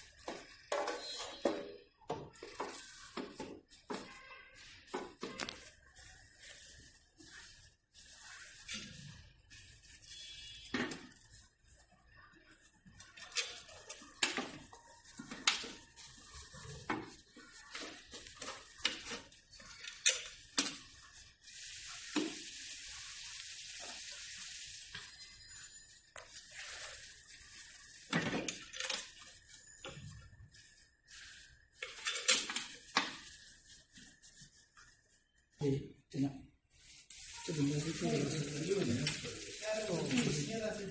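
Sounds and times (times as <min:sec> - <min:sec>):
tools and parts clattering: 0:00.2 - 0:04.1, 0:31.7 - 0:33.2
steady hiss: 0:36.9 - 0:40.9.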